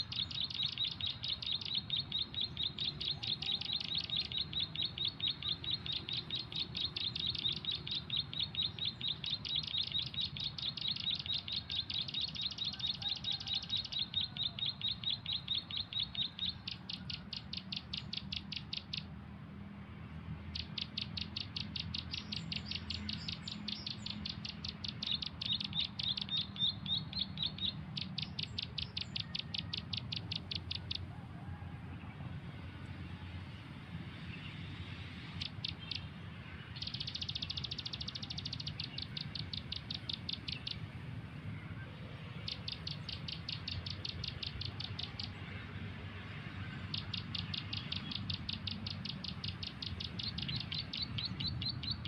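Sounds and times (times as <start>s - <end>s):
rapid high chirping from speaker: 0.0s - 19.1s, 20.6s - 31.1s, 35.4s - 41.1s, 42.3s - 45.4s, 46.8s - 52.0s.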